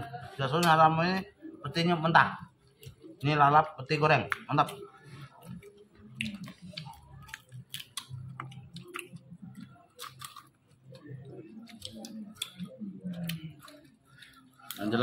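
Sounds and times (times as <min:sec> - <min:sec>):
person chewing and smacking: 0:04.3 - 0:15.0
wet mouth clicks: 0:05.4 - 0:10.4, 0:11.6 - 0:13.8.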